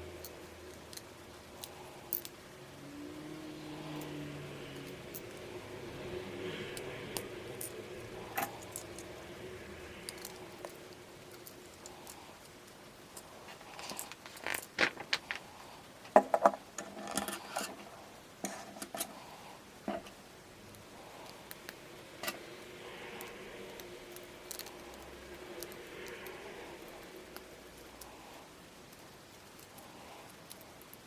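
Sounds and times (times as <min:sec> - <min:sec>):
plastic bricks clicking and rattling: 0:13.8 - 0:15.4.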